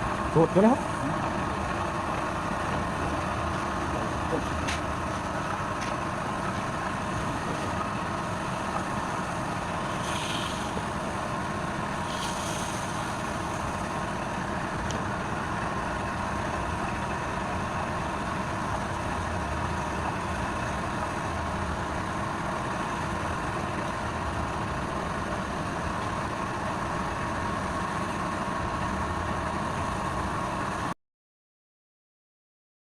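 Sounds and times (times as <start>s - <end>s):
lathe motor humming: 0.0s - 22.8s
brief hissing: 9.8s - 11.2s, 12.0s - 13.8s.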